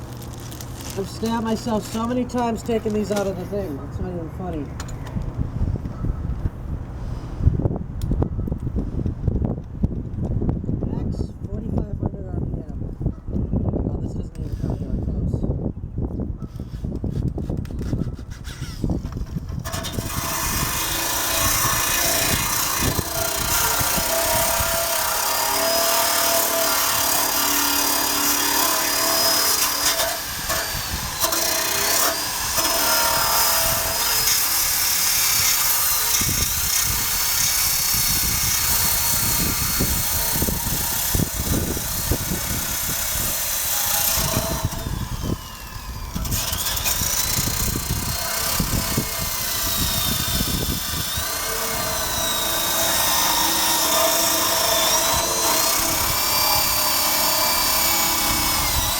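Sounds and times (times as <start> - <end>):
power drill motor whine: 17.8 - 58.9
wire brush scraping metal: 17.8 - 58.9.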